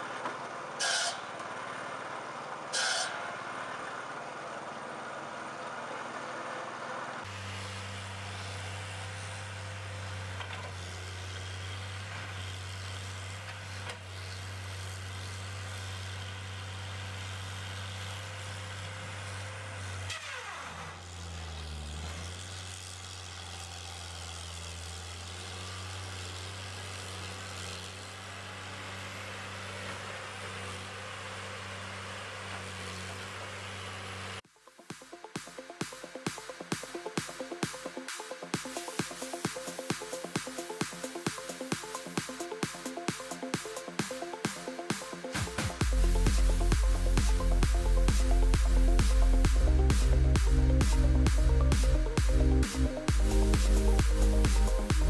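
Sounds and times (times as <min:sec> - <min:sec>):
engine humming: 0:36.6 - 0:55.0.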